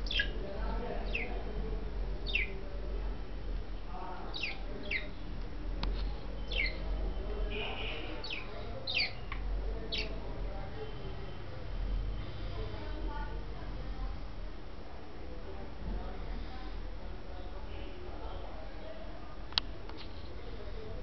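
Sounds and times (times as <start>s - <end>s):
budgerigars chirping: 0.0s - 0.4s, 1.0s - 1.3s, 2.2s - 2.5s, 4.3s - 5.2s, 6.4s - 6.8s, 7.8s - 10.2s.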